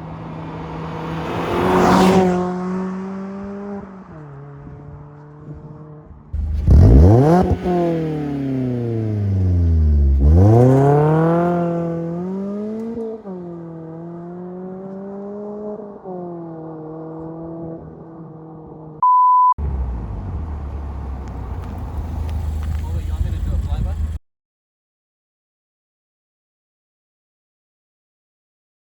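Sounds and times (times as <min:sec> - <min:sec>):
car exhaust passing and accelerating: 0:00.0 - 0:19.0, 0:19.6 - 0:24.2
electronic beep tone: 0:19.0 - 0:19.6.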